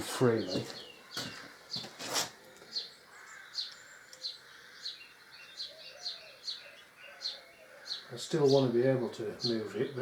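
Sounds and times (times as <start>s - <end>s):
short scuffing noises: 0.5s - 2.4s.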